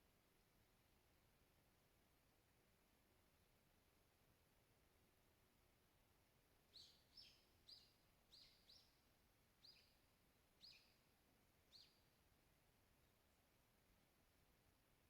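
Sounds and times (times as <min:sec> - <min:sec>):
faint background hiss: 0:00.0 - 0:15.0
songbird chirping: 0:06.6 - 0:13.8.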